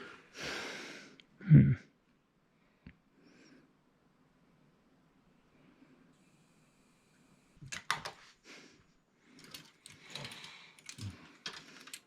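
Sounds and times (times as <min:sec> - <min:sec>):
hard objects clicking and knocking: 0:09.4 - 0:12.0.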